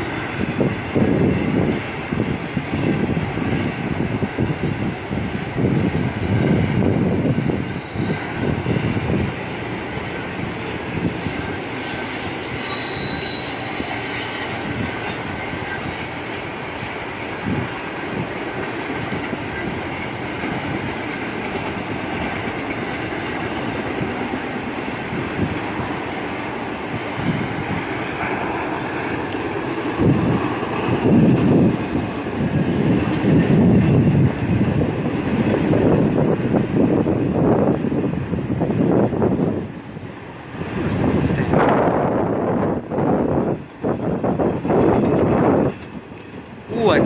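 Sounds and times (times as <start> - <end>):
freight train rumbling past: 0.0 - 47.0
wheel squeals: 7.6 - 8.5, 10.9 - 19.7.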